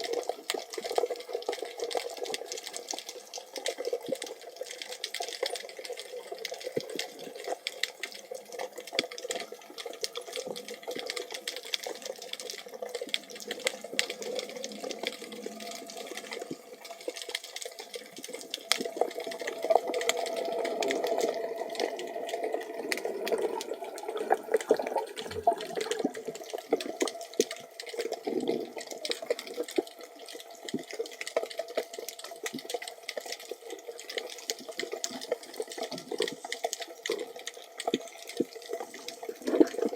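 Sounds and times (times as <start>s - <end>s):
crackle of tiny clicks: 0.0s - 39.9s
muffled water rush: 12.0s - 33.7s.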